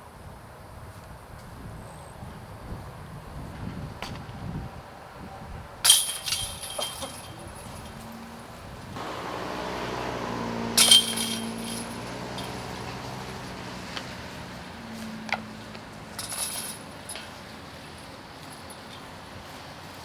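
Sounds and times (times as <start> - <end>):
passing vehicle hum: 3.8 - 18.6
disc hitting metal basket chains: 5.8 - 8.0, 9.0 - 13.7, 16.1 - 17.4
light chain jingle: 5.9 - 8.0, 9.3 - 13.6, 16.1 - 18.9.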